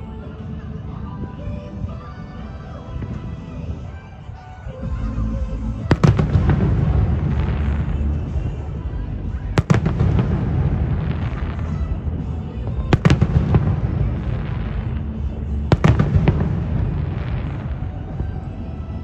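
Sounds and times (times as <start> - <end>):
rumble and crackle of bursting shells: 5.4 - 19.0.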